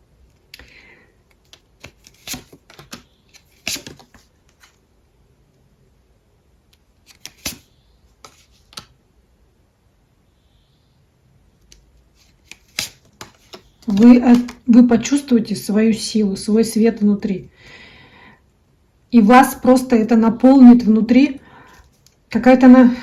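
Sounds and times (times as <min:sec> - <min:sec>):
cards clicking on a table: 0:01.3 - 0:04.7, 0:07.1 - 0:07.6, 0:11.7 - 0:14.6.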